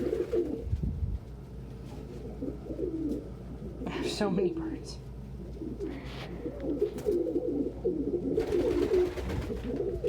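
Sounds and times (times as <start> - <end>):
pigeons cooing: 0.0 - 0.7, 1.9 - 4.0, 5.1 - 10.0.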